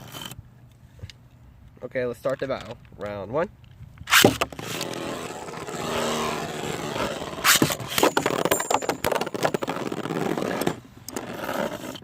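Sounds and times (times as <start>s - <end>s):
spinning tops whirring scrape: 4.1s - 12.0s.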